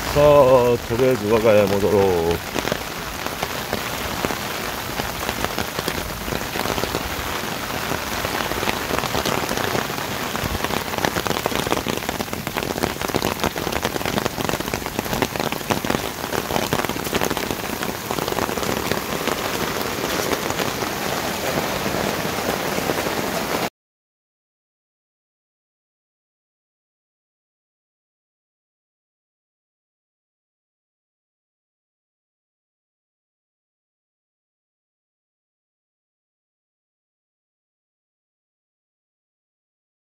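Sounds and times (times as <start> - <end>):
heavy rain falling: 0.0 - 23.7.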